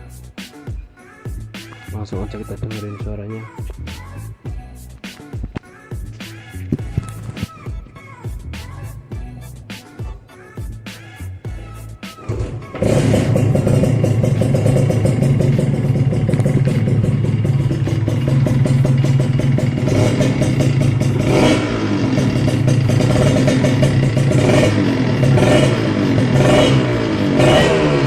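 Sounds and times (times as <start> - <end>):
motorcycle engine revving: 12.2 - 28.0.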